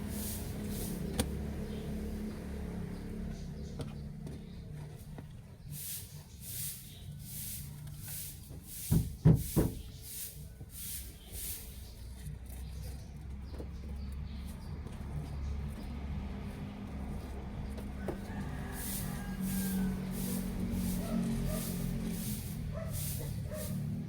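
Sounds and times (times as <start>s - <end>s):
swishing cleaning strokes: 0.0s - 1.2s, 5.7s - 12.0s, 18.2s - 24.0s.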